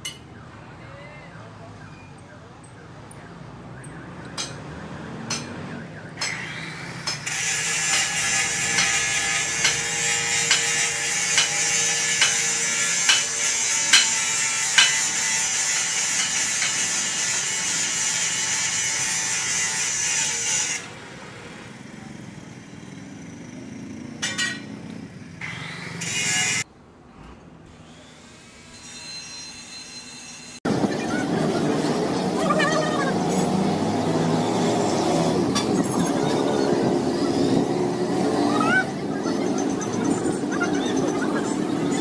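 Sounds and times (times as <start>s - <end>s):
uneven workshop noise: 0.0s - 0.6s, 1.5s - 42.0s
workshop tool hissing and ticking: 6.2s - 18.7s.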